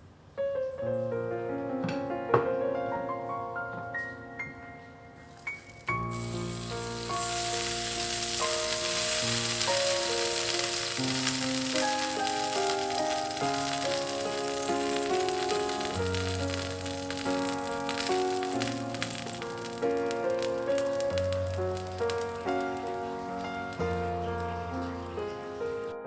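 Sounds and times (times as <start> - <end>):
soft piano music: 0.0 - 26.0
food sizzling in hot oil: 5.4 - 25.7.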